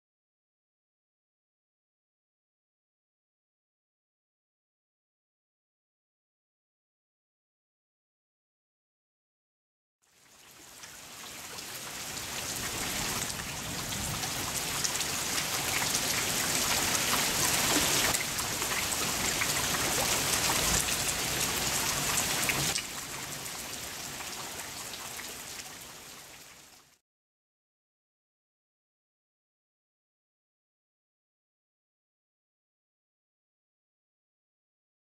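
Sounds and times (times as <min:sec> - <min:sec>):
rain falling on plants: 0:10.0 - 0:27.0.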